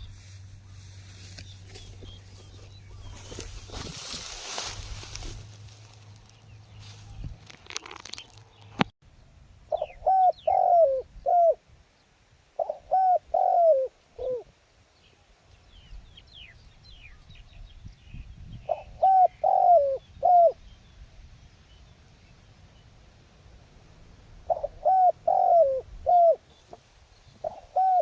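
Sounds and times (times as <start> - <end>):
rustle: 0.0 - 28.0
dove cooing: 9.7 - 11.6, 12.6 - 14.5, 18.7 - 20.6, 24.4 - 28.0.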